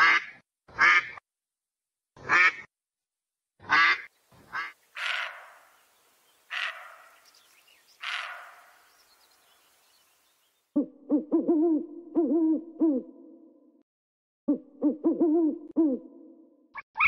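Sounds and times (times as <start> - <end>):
duck quacking: 0.0 - 1.2, 2.2 - 2.7, 3.6 - 5.7, 6.5 - 7.2, 8.0 - 8.7
harsh deer calls: 3.7 - 9.5.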